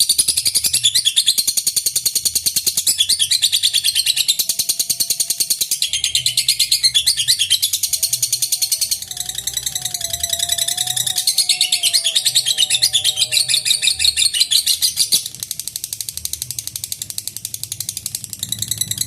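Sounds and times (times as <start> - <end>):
bird shrill chattering: 2.8 - 15.4.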